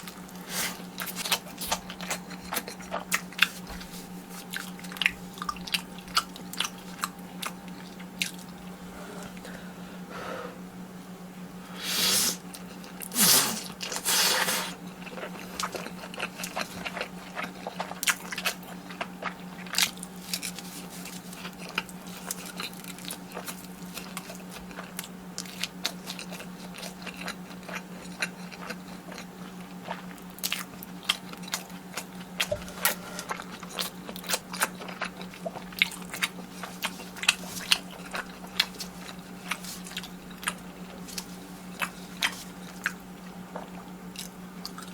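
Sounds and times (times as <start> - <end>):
crunchy wet chewing: 0.0 - 9.6, 12.3 - 44.9
noodle slurping: 11.8 - 12.4, 13.0 - 14.8.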